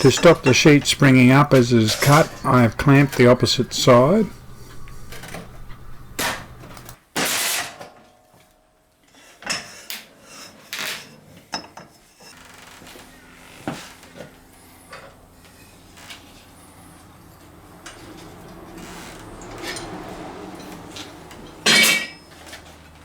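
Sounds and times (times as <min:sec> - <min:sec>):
metal guillotine shearing sheet: 0:00.0 - 0:07.9.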